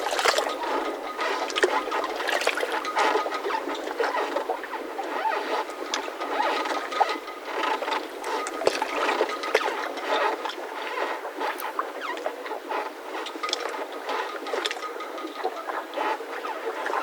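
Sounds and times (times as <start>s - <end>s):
mooring ropes creaking: 0.0s - 12.3s
water lapping: 0.0s - 17.0s.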